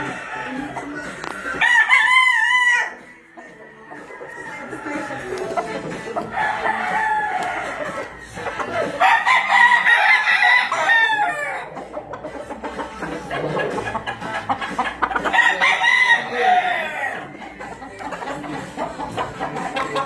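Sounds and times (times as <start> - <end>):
rooster crowing: 0.0 - 11.8, 15.1 - 17.4.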